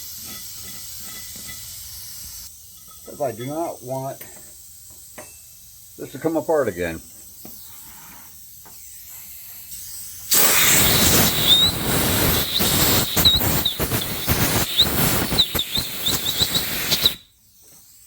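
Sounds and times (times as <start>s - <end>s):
pressurised spray hissing: 7.2s - 18.0s
faint high chirps: 10.7s - 17.3s.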